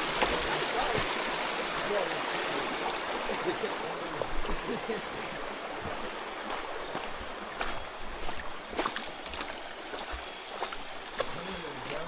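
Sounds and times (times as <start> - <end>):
creek water rushing: 0.0 - 12.0
splashes of people wading: 5.2 - 12.0.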